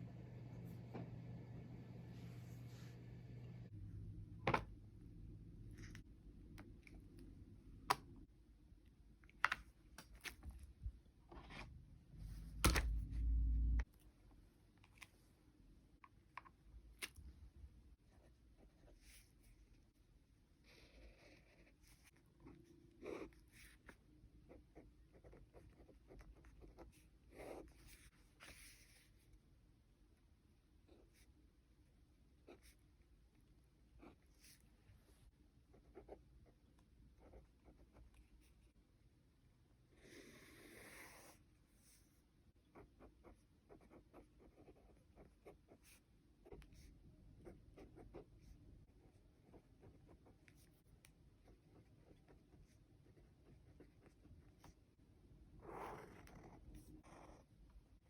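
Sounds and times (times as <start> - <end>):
pen scratching on paper: 20.6 - 29.0, 35.7 - 36.6, 37.2 - 38.5, 42.7 - 54.8, 55.6 - 57.5.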